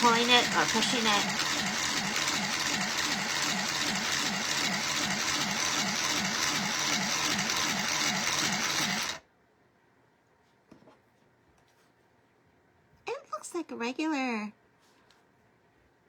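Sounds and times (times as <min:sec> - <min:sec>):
sewing machine stitching: 0:00.0 - 0:09.2.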